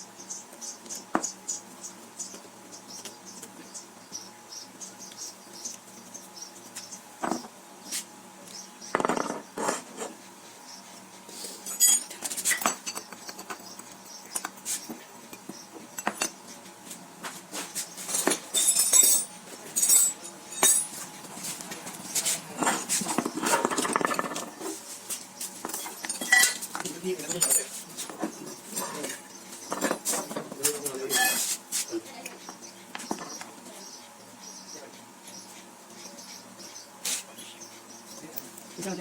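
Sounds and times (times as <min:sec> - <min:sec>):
metal tools clinking: 0:11.6 - 0:13.1, 0:18.1 - 0:21.1, 0:25.6 - 0:27.8, 0:28.8 - 0:31.5.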